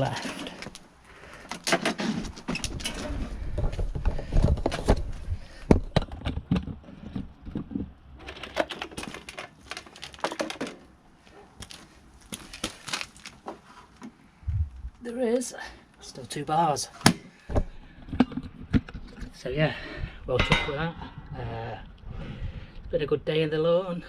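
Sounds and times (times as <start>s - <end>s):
lawnmower handling clatter: 5.8s - 10.9s
low rumble: 14.4s - 15.0s.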